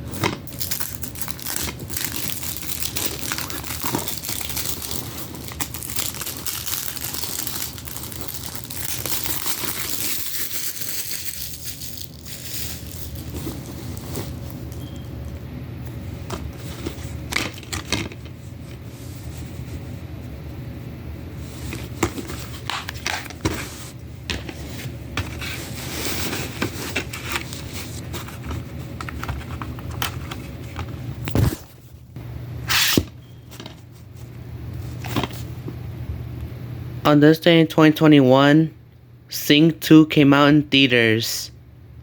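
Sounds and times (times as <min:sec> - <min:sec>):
packaging rustling: 0:00.0 - 0:15.1, 0:15.9 - 0:19.6, 0:21.4 - 0:31.9
steady low hum: 0:00.0 - 0:42.0.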